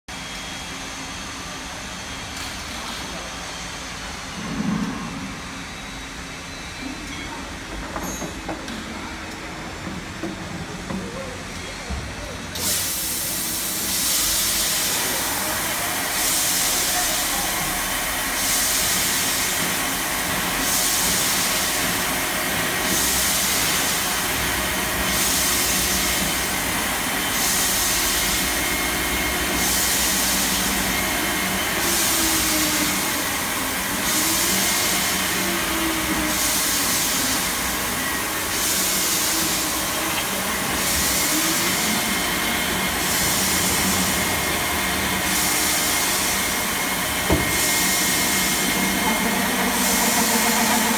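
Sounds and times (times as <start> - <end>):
machine hiss: 12.5 - 50.9
drilling machine running: 12.6 - 50.9.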